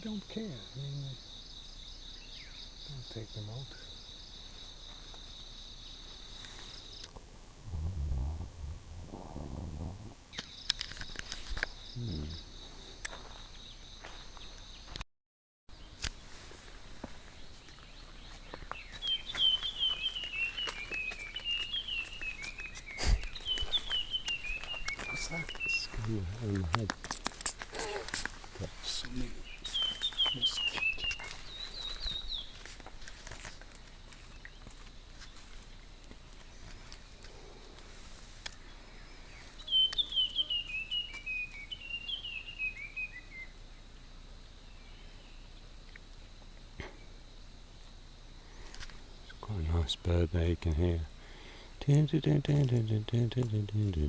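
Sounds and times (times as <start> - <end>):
bird chirping: 0.0 - 8.5, 9.6 - 15.0, 17.2 - 37.7, 38.4 - 47.9, 48.5 - 51.1
faint forest background hiss: 0.0 - 15.0, 15.7 - 54.0
quiet jungle background: 0.0 - 15.0, 15.7 - 54.0
bird whistling song: 18.3 - 25.9, 29.4 - 32.6, 38.9 - 43.6.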